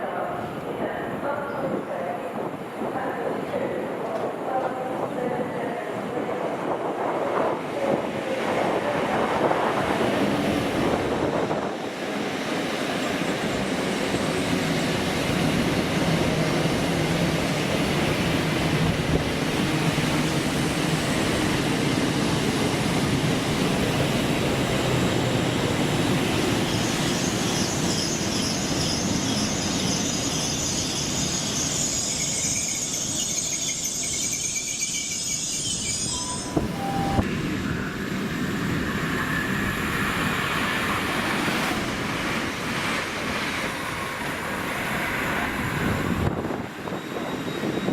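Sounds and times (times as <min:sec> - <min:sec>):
train rumbling and rattling: 0:00.0 - 0:47.9
high-pitched metallic squeal: 0:26.7 - 0:38.0.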